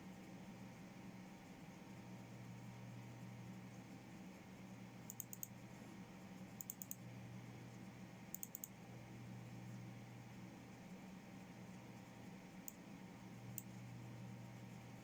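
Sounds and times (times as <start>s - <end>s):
computer hum: 4.7s - 15.0s
keyboard keystrokes: 5.1s - 5.5s, 6.6s - 7.0s, 8.4s - 8.7s.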